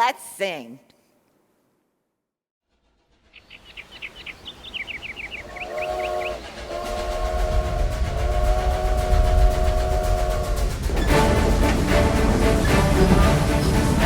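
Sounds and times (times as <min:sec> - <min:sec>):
train low rumble: 0:02.7 - 0:14.0
steam whistle blasts: 0:05.5 - 0:14.0.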